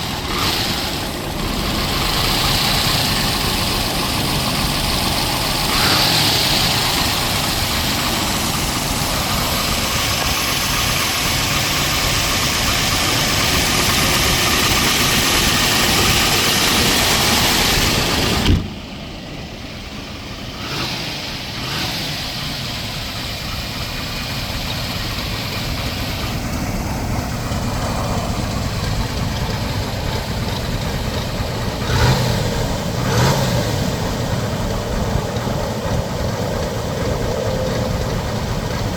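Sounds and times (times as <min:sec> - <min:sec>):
car engine idling: 0:00.0 - 0:38.9
thump: 0:18.4 - 0:18.8.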